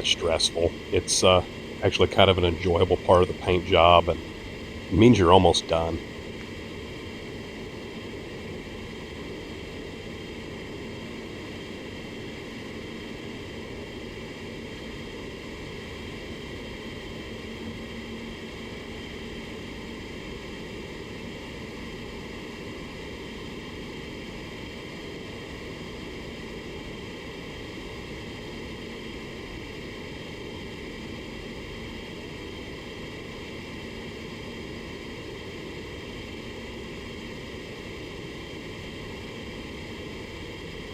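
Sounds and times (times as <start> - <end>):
faint low hum: 0.0 - 6.2.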